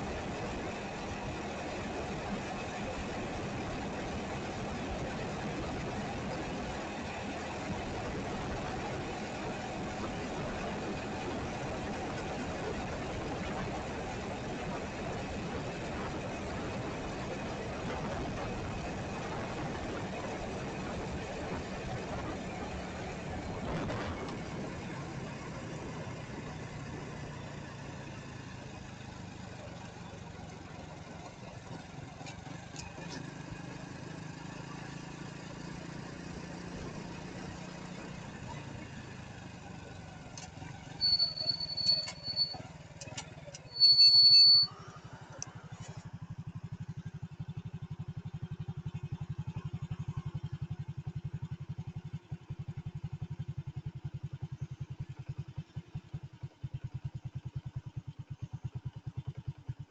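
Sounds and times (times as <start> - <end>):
engine idling: 37.8 - 59.9
high electronic beeps: 41.0 - 42.6, 43.7 - 44.8.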